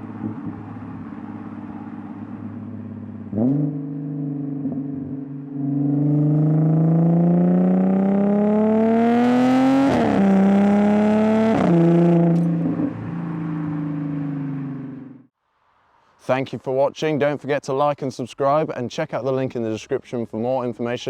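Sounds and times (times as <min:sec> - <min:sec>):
car engine accelerating: 0:00.0 - 0:15.3.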